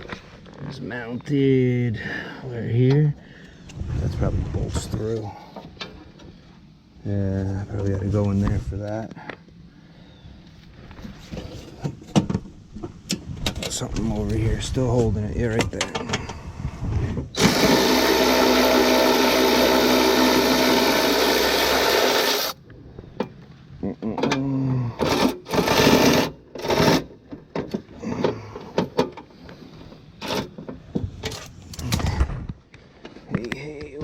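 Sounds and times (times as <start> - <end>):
cordless power tool running: 17.4 - 22.6, 25.0 - 27.0.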